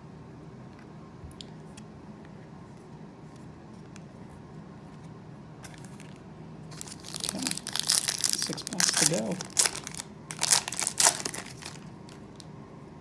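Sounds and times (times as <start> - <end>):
low room hum: 0.0 - 13.0
trading cards clicking and rustling: 5.7 - 12.4.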